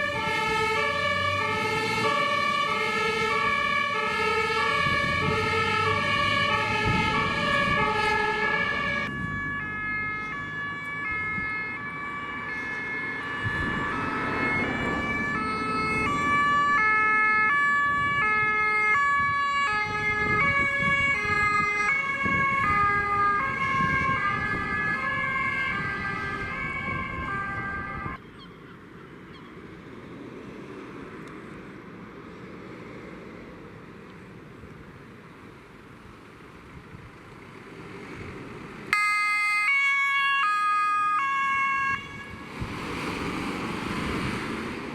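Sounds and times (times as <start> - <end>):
vehicle engine: 0.0 - 20.4, 22.8 - 39.0, 42.1 - 44.9
two-tone emergency siren: 0.0 - 28.2, 38.9 - 42.7
wind: 0.0 - 44.9.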